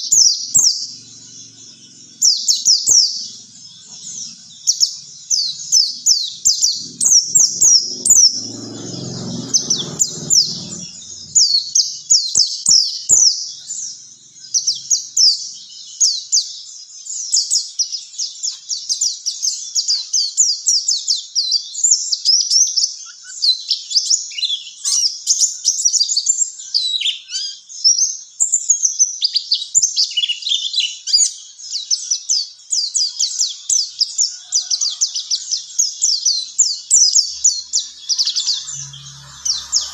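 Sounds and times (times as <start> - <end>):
bird song high chirping: 0.0 - 39.9
low rumble: 5.3 - 11.9, 37.1 - 39.9.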